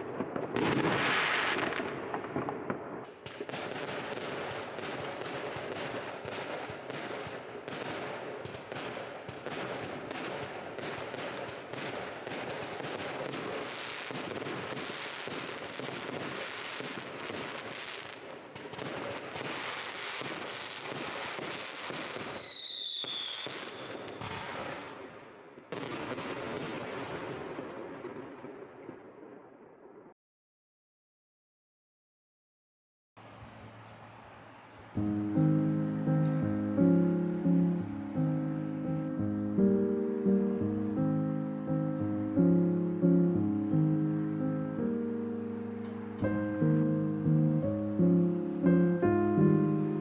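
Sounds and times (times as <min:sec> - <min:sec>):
fireworks crackling and banging: 0:00.0 - 0:24.9, 0:25.7 - 0:29.4
firework whistle: 0:22.2 - 0:24.0.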